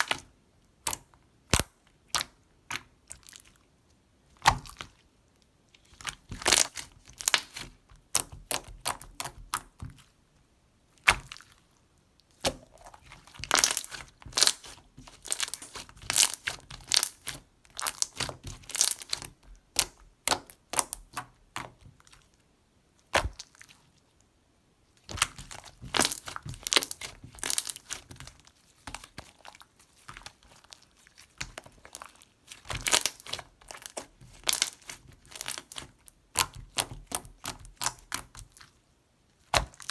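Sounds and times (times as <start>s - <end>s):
slime clicking and popping: 25.1s - 28.1s, 32.6s - 38.5s.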